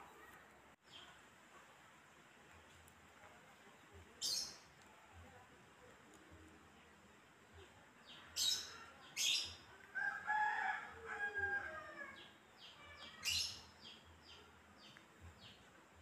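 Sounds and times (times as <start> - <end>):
birds chirping: 3.5 - 5.2, 6.1 - 9.8.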